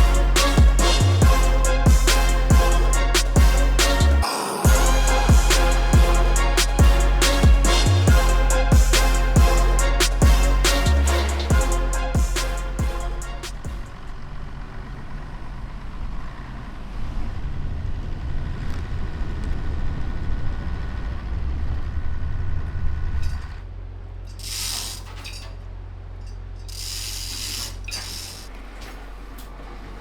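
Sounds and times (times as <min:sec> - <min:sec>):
hissing bursts: 0:00.0 - 0:13.9.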